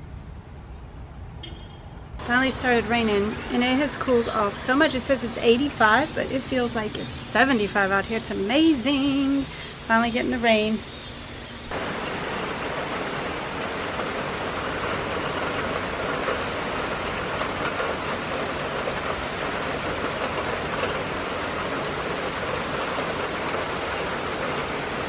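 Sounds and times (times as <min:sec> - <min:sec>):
steady rain falling: 0:11.7 - 0:25.0.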